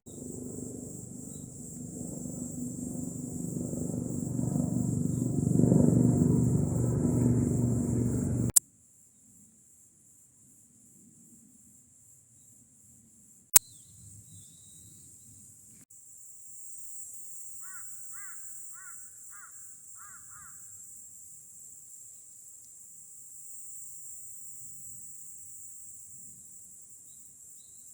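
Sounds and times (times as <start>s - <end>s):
insect trilling: 0.1s - 8.6s, 16.0s - 21.0s
low rumble with hum: 0.1s - 8.6s.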